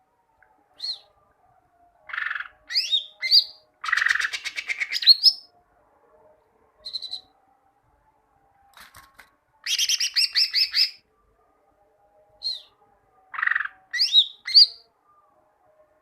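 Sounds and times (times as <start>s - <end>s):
bird singing whistled phrases: 0.8s - 1.1s, 2.1s - 5.5s, 6.9s - 7.3s, 13.4s - 14.8s.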